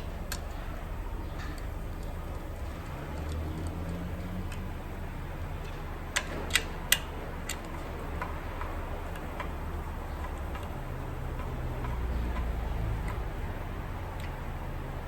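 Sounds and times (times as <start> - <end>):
hand tools clicking on metal: 1.3 - 4.7, 5.6 - 13.5.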